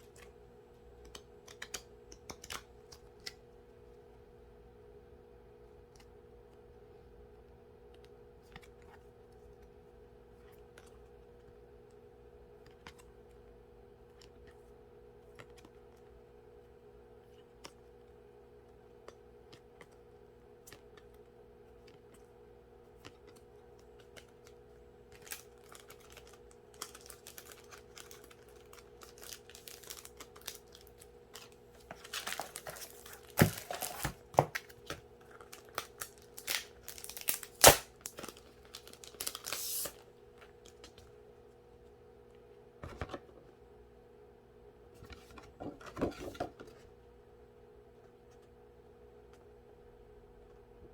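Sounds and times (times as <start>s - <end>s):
quiet steady hum: 0.0s - 50.9s
packaging rustled and torn: 24.0s - 41.0s.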